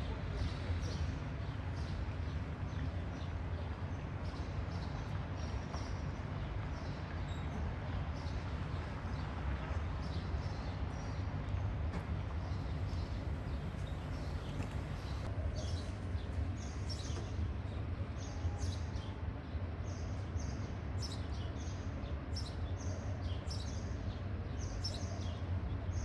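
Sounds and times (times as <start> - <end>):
steady low rumble: 12.0 - 15.3.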